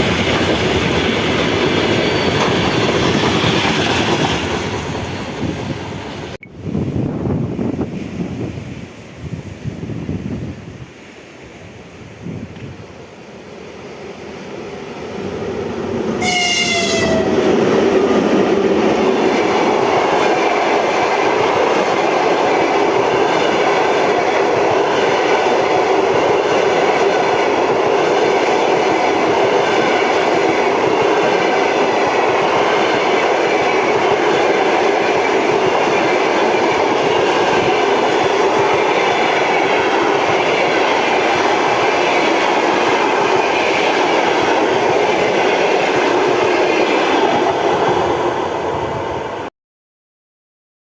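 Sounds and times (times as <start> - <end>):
train wheels rumbling on rails: 0.0 - 49.5
train horn blast: 16.2 - 17.4.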